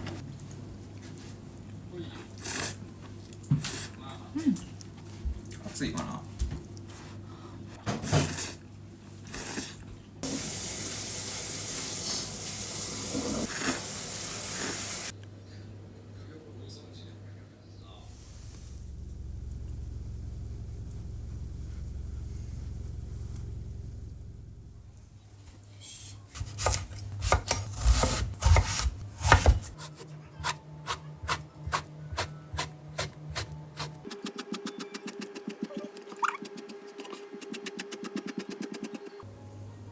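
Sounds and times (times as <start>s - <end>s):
tap water running: 10.2s - 15.1s
low steady hum: 15.1s - 34.1s
knife chopping on cutting board: 26.4s - 34.4s.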